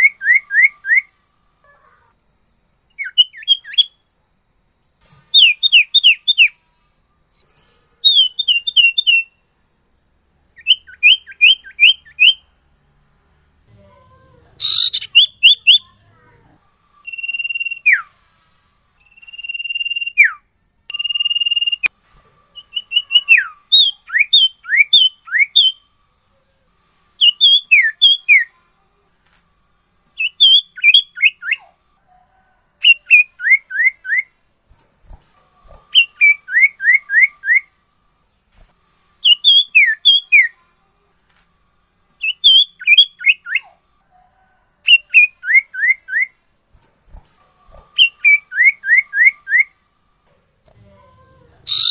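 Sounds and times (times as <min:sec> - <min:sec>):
songbird whistling and singing: 0:00.0 - 0:01.1, 0:02.9 - 0:04.0, 0:05.3 - 0:06.6, 0:08.0 - 0:09.4, 0:10.6 - 0:12.4, 0:14.6 - 0:16.0, 0:17.0 - 0:18.2, 0:19.0 - 0:21.9, 0:22.6 - 0:25.9, 0:27.2 - 0:28.6, 0:30.2 - 0:31.7, 0:32.8 - 0:34.4, 0:35.8 - 0:37.7, 0:39.2 - 0:40.6, 0:42.2 - 0:43.7, 0:44.8 - 0:46.4, 0:47.8 - 0:49.8, 0:51.6 - 0:51.9.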